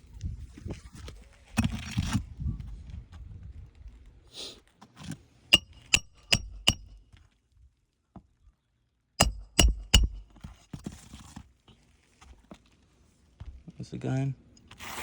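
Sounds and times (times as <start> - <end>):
hammer striking roofing nail: 5.6 - 7.0, 9.2 - 10.4.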